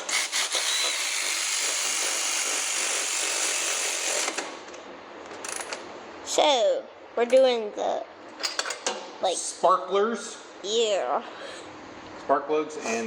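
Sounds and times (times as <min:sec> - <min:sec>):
power tool running: 0:00.0 - 0:04.6.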